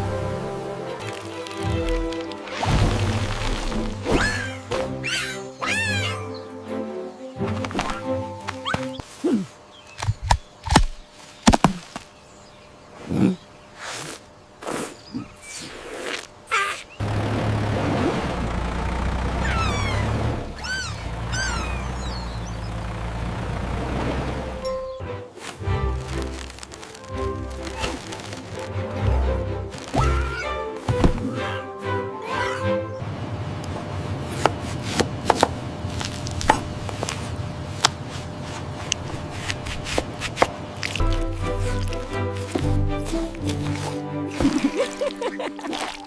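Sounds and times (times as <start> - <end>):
high squeaky animal calls: 4.1 - 6.5, 16.5 - 17.0, 19.4 - 22.6, 29.9 - 30.7, 31.3 - 32.8
vehicle engine running: 17.0 - 25.1, 33.0 - 39.9.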